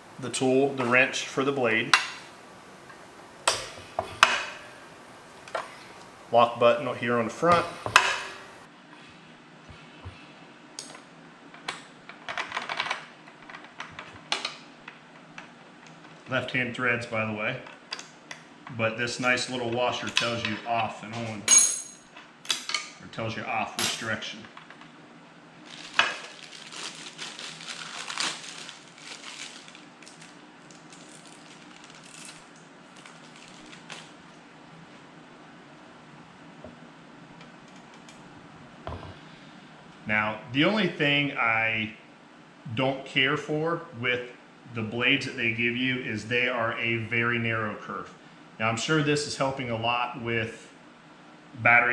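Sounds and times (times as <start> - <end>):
clattering knocks of saw parts: 0.0 - 8.7
packaging rustling and crinkling: 25.6 - 34.2.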